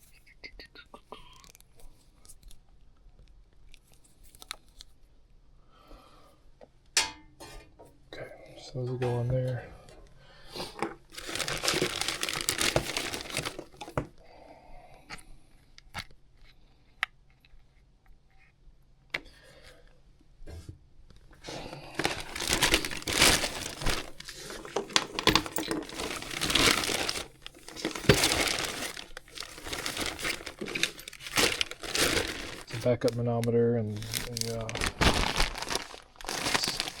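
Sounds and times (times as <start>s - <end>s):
rustling and crinkling of tools: 1.4s - 5.0s, 7.0s - 14.2s, 20.5s - 37.0s.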